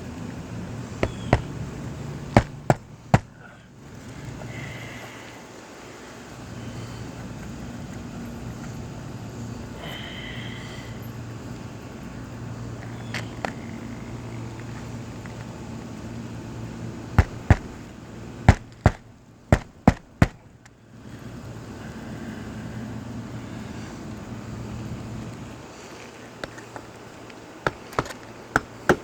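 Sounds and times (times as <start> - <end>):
steady low hum: 0.0 - 29.0
hammer knocking nails: 1.0 - 1.6, 2.4 - 3.4, 17.2 - 17.8, 18.5 - 20.5.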